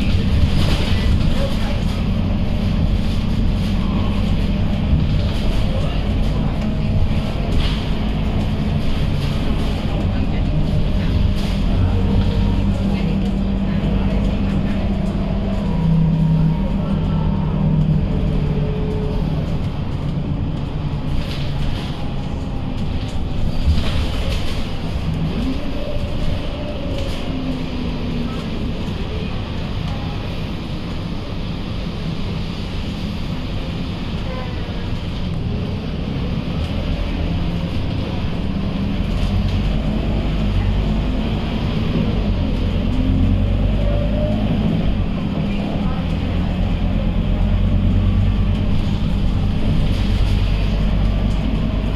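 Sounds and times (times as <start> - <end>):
bus engine and road rumble: 0.0 - 51.9.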